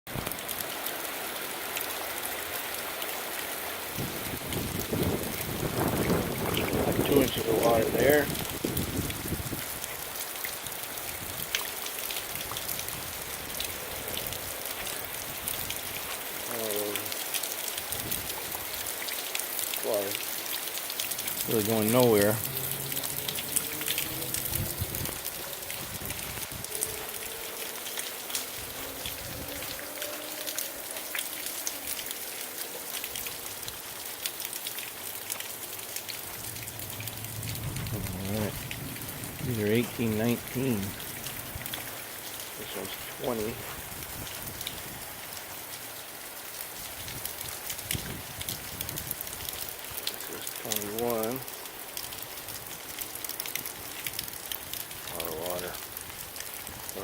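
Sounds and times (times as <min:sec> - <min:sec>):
rain falling: 0:00.1 - 0:57.0
raindrops ticking on surfaces: 0:00.1 - 0:57.0.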